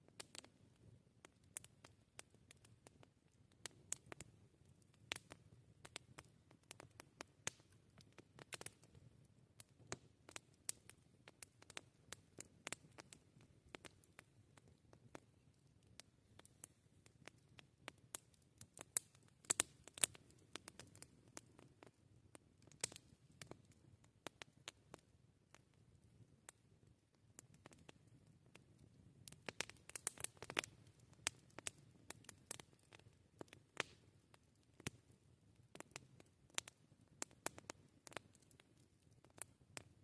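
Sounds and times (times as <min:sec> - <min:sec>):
campfire crackling and popping: 0:00.0 - 0:40.0.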